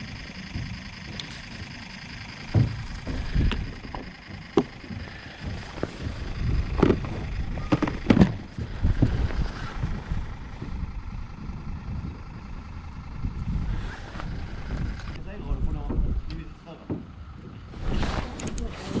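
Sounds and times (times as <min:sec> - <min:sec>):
wind buffeting microphone: 0:00.0 - 0:19.0
sharp knocks: 0:00.5 - 0:08.5.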